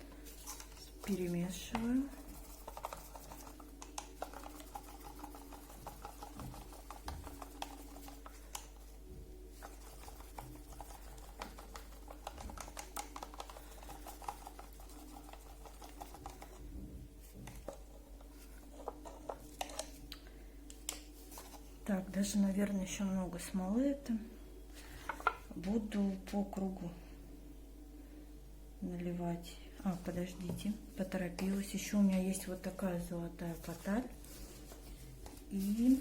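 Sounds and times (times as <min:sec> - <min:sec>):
stirring stick scraping a cup: 0:00.2 - 0:16.6.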